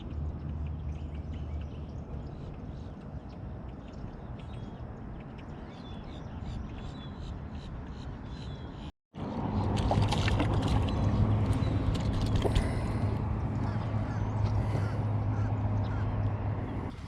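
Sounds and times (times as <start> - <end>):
steady low rumble: 9.2 - 17.0.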